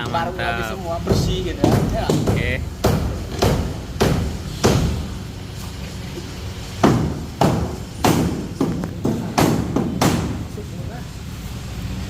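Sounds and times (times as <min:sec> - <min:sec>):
sharp knocks and bangs: 0:01.0 - 0:05.5, 0:06.2 - 0:10.6.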